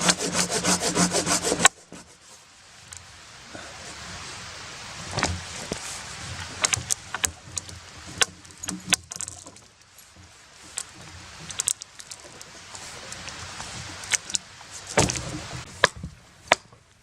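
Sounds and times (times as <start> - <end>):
rustling: 0.0 - 16.9
wood knocking and clattering: 5.1 - 12.5, 13.2 - 16.8.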